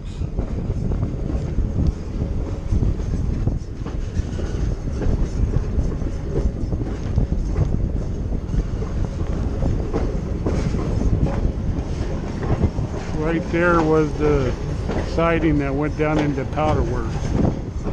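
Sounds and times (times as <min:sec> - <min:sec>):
train clicks and clatter: 0:00.0 - 0:17.9
train wheels rumbling on track: 0:00.0 - 0:17.9.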